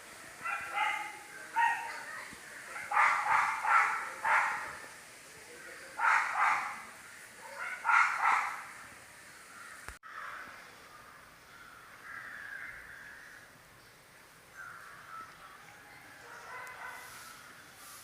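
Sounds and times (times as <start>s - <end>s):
distant bird calls: 0.0s - 18.0s
bird cawing: 9.5s - 10.5s, 11.5s - 13.5s.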